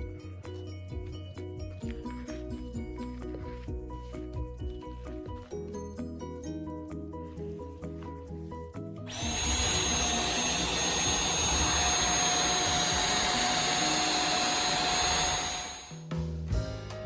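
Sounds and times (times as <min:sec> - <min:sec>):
vacuum cleaner running: 0:09.1 - 0:16.0.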